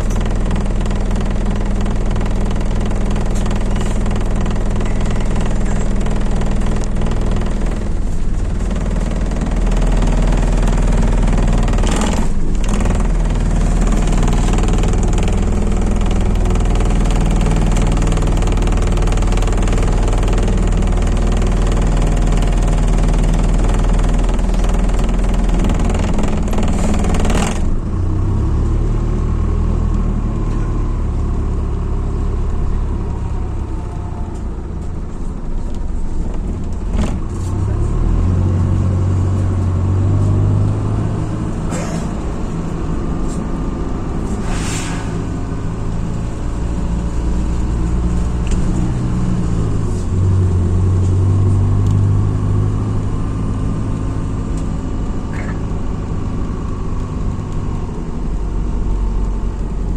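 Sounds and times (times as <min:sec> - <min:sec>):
bus diesel engine running: 0:00.0 - 0:59.9
loud air hiss: 0:44.3 - 0:45.5
short hisses: 0:44.3 - 0:45.6.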